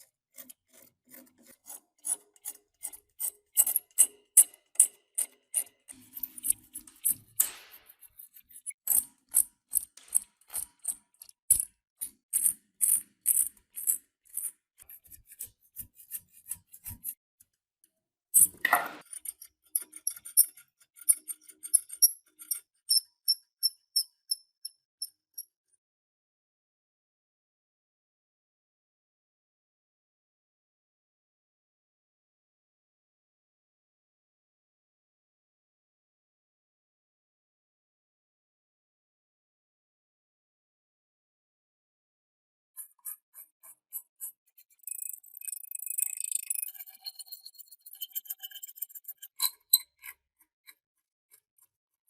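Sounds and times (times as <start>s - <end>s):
hand tool scraping rusty metal: 0.3s - 11.2s.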